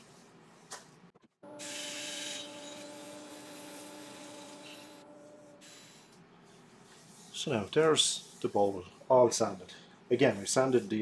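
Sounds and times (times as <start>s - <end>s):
lathe motor hum: 1.5s - 5.7s
sandpaper rubbing spinning wood: 1.7s - 9.6s, 10.2s - 11.0s.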